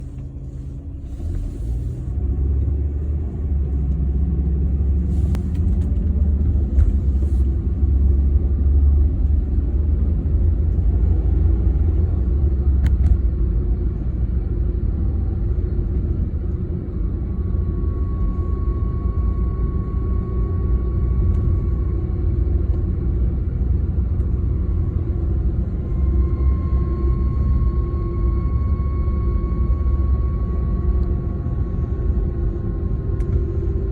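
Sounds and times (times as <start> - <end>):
high whine: 15.4 - 33.9.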